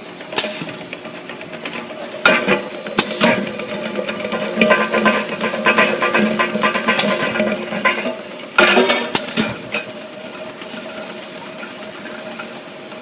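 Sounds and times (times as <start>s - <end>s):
loud machine clack: 0.0s - 8.0s
machine humming: 0.0s - 13.0s.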